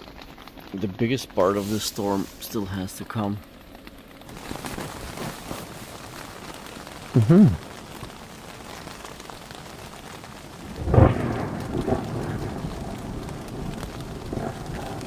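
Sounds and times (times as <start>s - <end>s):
steady rain: 0.0s - 15.0s
thunder clap and rumble: 10.4s - 15.0s.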